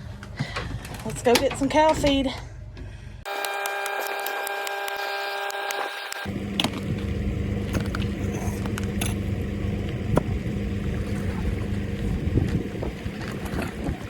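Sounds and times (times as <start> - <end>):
clicks and rattles: 0.0 - 2.9
steady high whine: 3.2 - 13.4
vehicle engine droning: 6.1 - 13.6.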